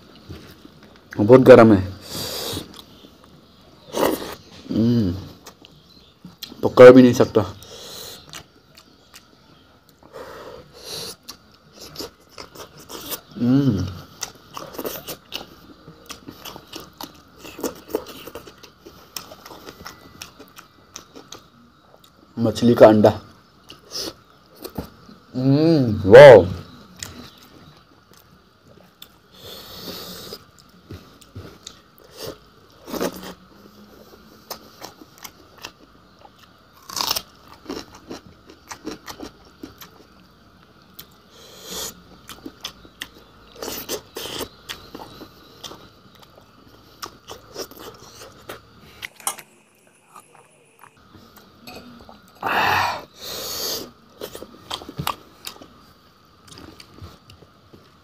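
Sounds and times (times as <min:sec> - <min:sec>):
person chewing and crunching: 0:07.6 - 0:22.2, 0:34.4 - 0:53.1, 0:53.8 - 0:58.0.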